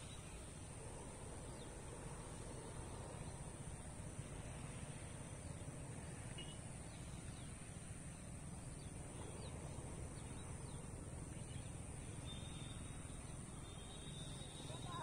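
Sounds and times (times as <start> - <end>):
faint bird chirps: 6.3 - 7.5
thin high steady tone: 6.4 - 15.0.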